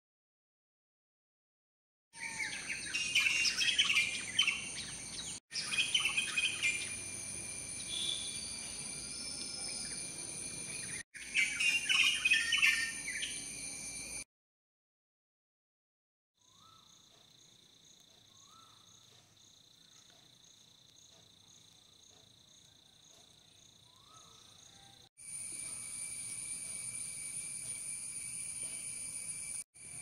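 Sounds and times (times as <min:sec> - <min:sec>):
birds chirping: 0:02.2 - 0:13.6.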